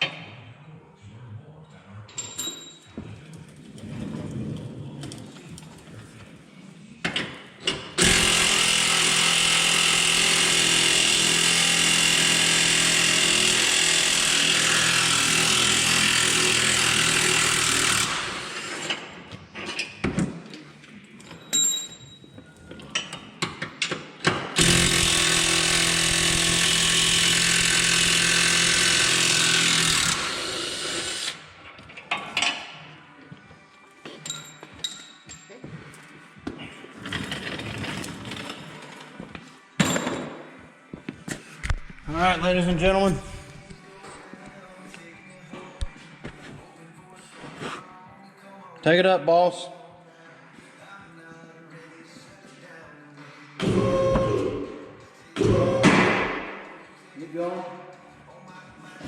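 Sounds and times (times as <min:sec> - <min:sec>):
loud power tool running: 0:08.0 - 0:18.8, 0:24.6 - 0:31.4.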